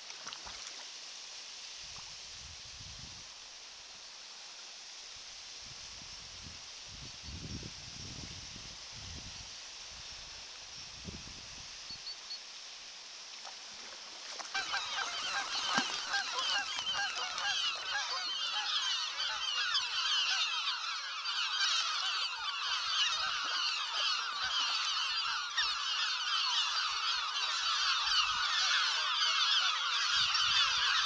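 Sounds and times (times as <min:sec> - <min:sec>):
flock of birds honking: 0:14.4 - 0:31.0.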